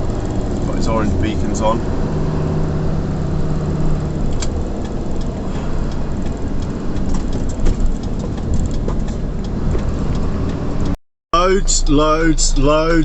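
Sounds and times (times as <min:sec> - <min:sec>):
road noise: 0:00.0 - 0:13.0
vehicle engine drone: 0:00.0 - 0:13.0
light clicks and rattles: 0:05.9 - 0:10.3.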